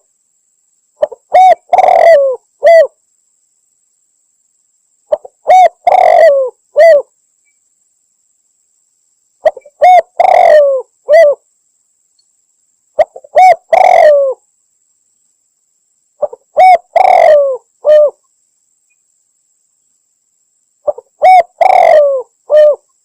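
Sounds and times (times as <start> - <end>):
dove cooing: 1.0 - 3.0, 5.1 - 7.1, 9.4 - 11.4, 13.0 - 14.4, 16.2 - 18.2, 20.8 - 22.9.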